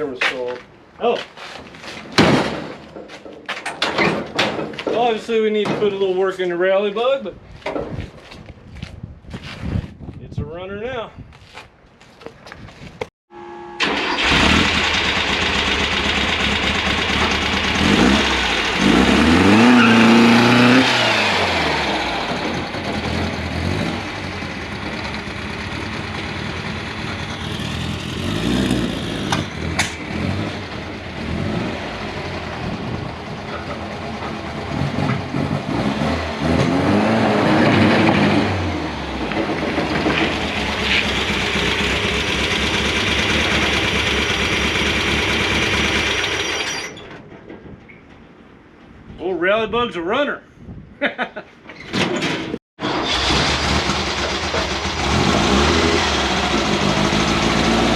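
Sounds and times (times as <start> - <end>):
car engine revving: 13.8 - 32.8, 34.1 - 46.3, 52.8 - 57.9.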